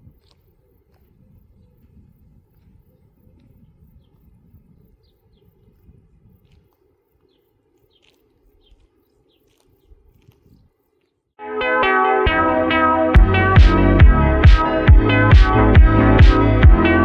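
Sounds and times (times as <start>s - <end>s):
small birds chirping: 0.0s - 11.4s
loud electronic music: 11.5s - 17.0s.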